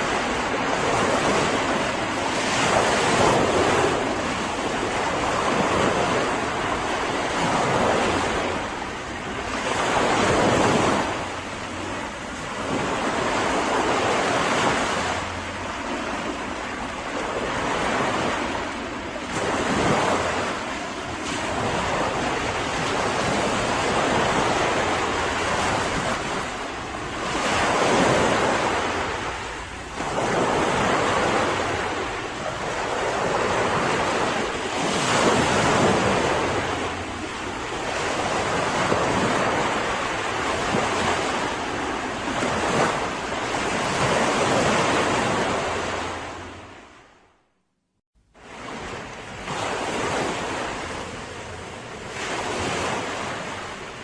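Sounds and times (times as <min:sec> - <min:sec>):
sea waves breaking on beach: 0:00.0 - 0:47.2, 0:48.4 - 0:54.0.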